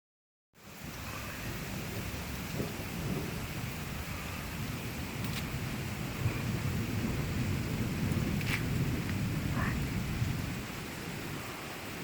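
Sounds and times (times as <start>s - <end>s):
steady rainfall: 0.6s - 12.0s.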